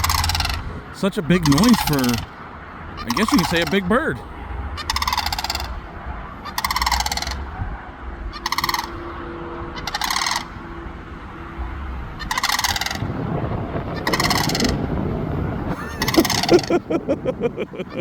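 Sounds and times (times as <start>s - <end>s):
cranes rattling calls: 1.4s - 2.2s, 4.8s - 5.8s, 6.5s - 7.4s, 8.4s - 9.0s, 9.8s - 10.5s, 12.3s - 13.0s, 15.9s - 16.8s.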